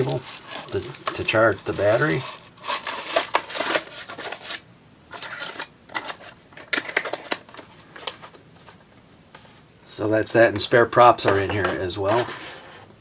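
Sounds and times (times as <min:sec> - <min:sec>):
plastic packaging rustling: 0:00.0 - 0:08.8.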